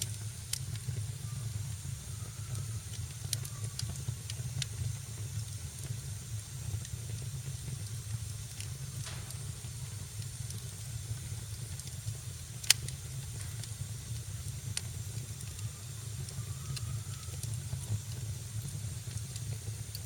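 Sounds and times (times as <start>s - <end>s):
wood fire crackling: 0.0s - 20.0s
sharp loud pop of fire: 9.0s - 11.4s.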